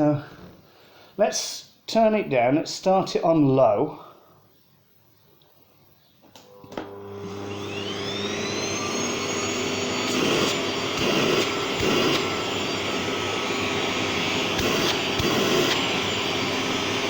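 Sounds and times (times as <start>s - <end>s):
vacuum cleaner motor whine: 6.4s - 17.0s.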